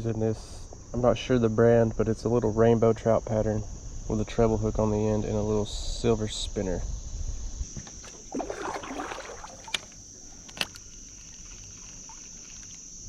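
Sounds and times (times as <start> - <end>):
crickets chirring: 0.0 - 13.0
water and kayak sounds: 7.8 - 13.0.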